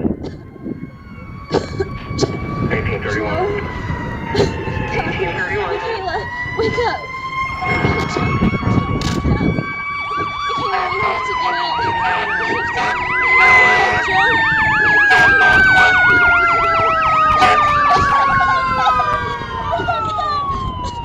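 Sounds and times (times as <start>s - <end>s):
fast yelping siren: 0.0s - 21.0s
held siren tone sliding lower: 0.4s - 21.0s.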